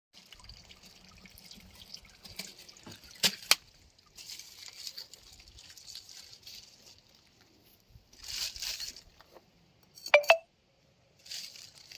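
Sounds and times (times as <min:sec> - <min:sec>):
oil trickling and dripping: 0:00.2 - 0:09.2.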